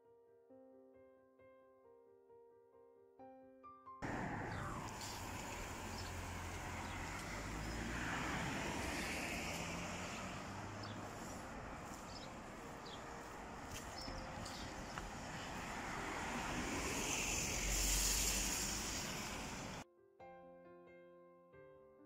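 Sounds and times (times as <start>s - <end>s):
piano music: 0.1s - 17.1s
road noise: 4.0s - 19.8s
vehicle passing: 4.0s - 19.8s
wind: 4.0s - 19.8s.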